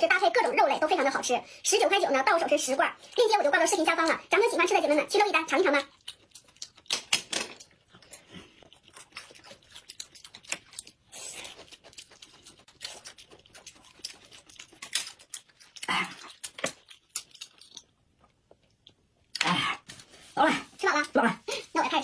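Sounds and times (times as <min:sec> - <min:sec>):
wet chewing and lip smacking: 0:05.6 - 0:19.4.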